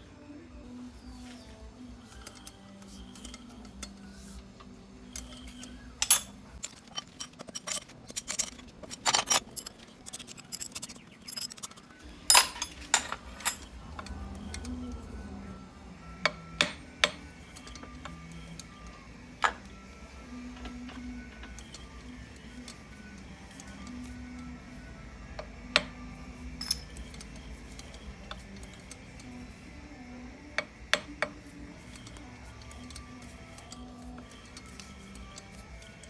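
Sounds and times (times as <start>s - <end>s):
quiet background music: 0.0s - 36.0s
metallic clinks of steel parts: 2.0s - 4.4s, 5.1s - 14.8s, 20.6s - 24.2s, 26.6s - 29.6s, 31.2s - 36.0s.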